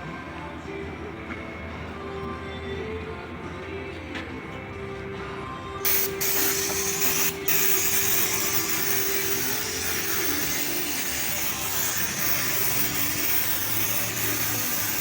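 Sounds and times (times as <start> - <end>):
loud steady hiss: 5.9 - 15.0.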